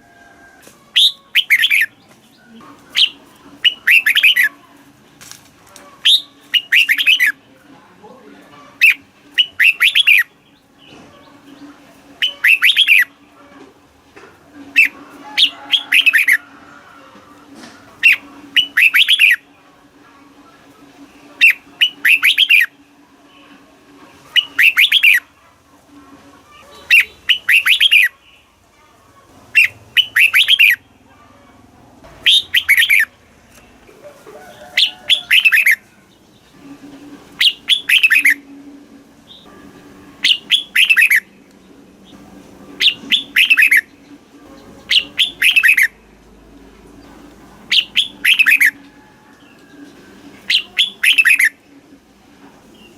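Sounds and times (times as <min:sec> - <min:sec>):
bulbul singing: 0:00.9 - 0:04.6, 0:06.0 - 0:07.4, 0:08.7 - 0:13.3, 0:14.6 - 0:16.4, 0:18.0 - 0:19.6, 0:21.3 - 0:23.4, 0:24.2 - 0:25.3, 0:26.7 - 0:28.5, 0:29.5 - 0:31.1, 0:32.1 - 0:33.7, 0:34.8 - 0:38.6, 0:39.2 - 0:51.8.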